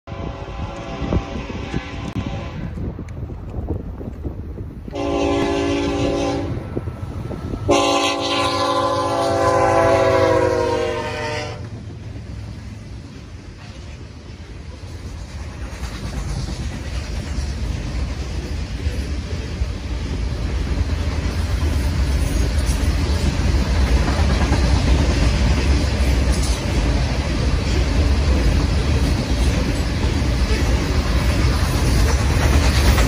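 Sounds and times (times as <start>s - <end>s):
locomotive air horn blasts: 0.1s - 2.8s, 4.9s - 6.8s, 7.6s - 11.7s
train rumble and wheel clatter: 0.1s - 33.0s.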